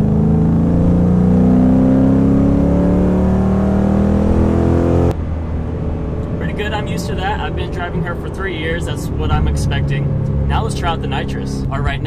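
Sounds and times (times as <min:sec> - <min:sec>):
car engine at full throttle: 0:00.0 - 0:12.0.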